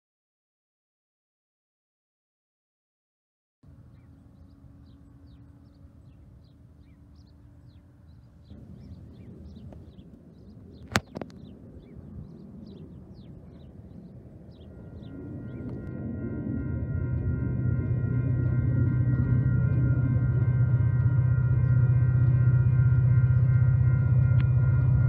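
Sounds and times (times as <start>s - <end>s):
low outdoor rumble: 3.6s - 25.0s
small birds chirping: 3.9s - 15.8s.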